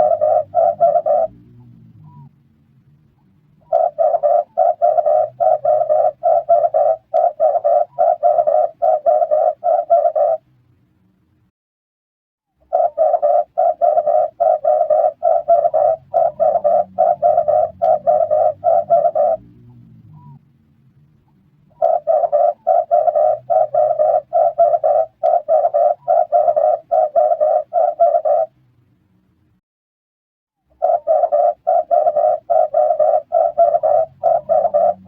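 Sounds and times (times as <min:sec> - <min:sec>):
dove cooing: 0:00.0 - 0:02.3, 0:03.6 - 0:10.4, 0:12.6 - 0:20.4, 0:21.7 - 0:28.5, 0:30.7 - 0:35.0.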